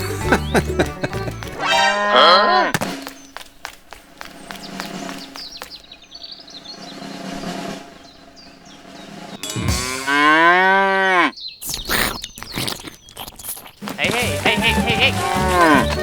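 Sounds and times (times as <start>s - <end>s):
cow mooing: 1.6s - 2.7s, 9.4s - 11.3s, 14.5s - 16.0s
faint bird chirps: 11.1s - 14.9s.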